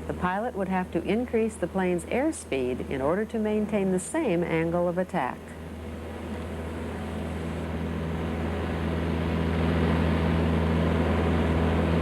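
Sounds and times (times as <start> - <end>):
propeller airplane engine droning: 0.0 - 12.0.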